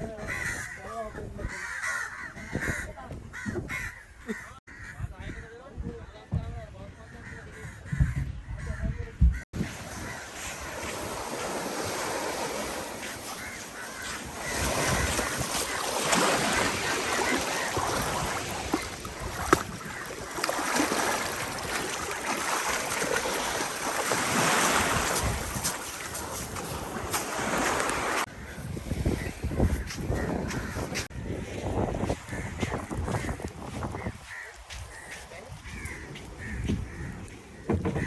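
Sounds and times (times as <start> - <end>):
wind buffeting microphone: 2.2 - 22.2, 24.2 - 38.0
sea waves: 9.5 - 28.6.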